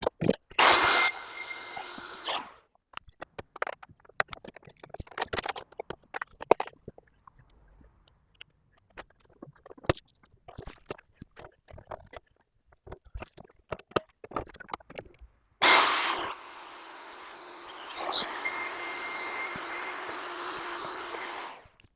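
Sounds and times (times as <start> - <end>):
corded drill running: 0.6 - 2.5, 15.6 - 21.7.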